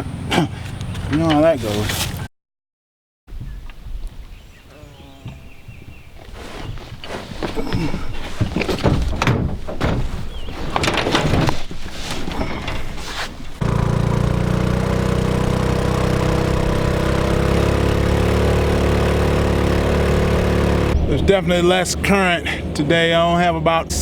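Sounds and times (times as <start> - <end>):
boat motor running: 13.6 - 24.0.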